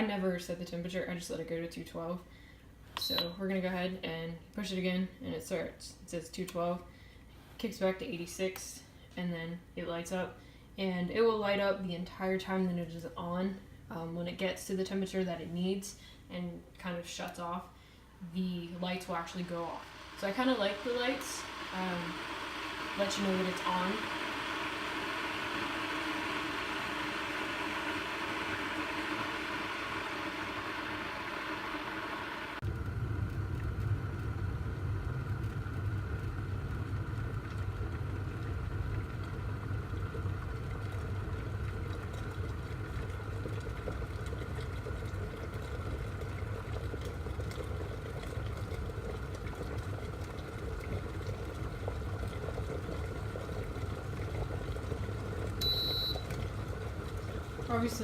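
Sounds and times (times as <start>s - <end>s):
water boiling rumble: 0.0s - 2.8s, 9.6s - 58.0s
kettle hissing: 18.2s - 58.0s.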